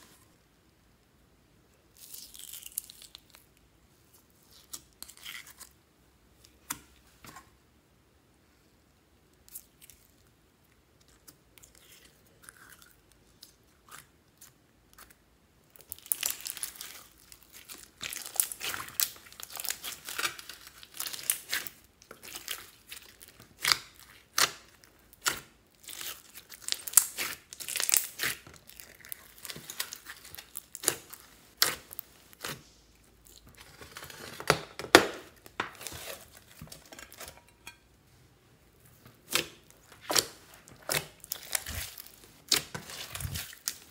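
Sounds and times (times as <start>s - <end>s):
hands squishing slime: 11.0s - 33.6s, 38.7s - 43.9s.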